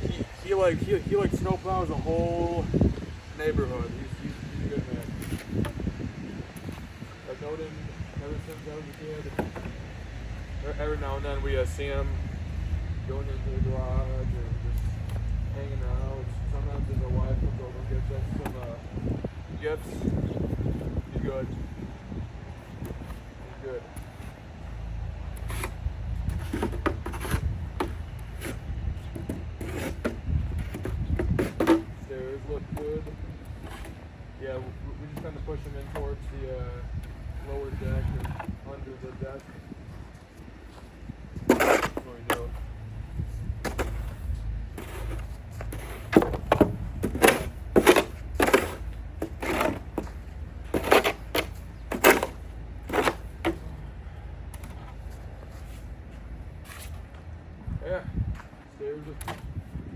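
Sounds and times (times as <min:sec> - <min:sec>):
snow shovel scraping: 0:25.4 - 0:27.5, 0:29.6 - 0:30.1, 0:41.5 - 0:42.5, 0:43.6 - 0:53.7.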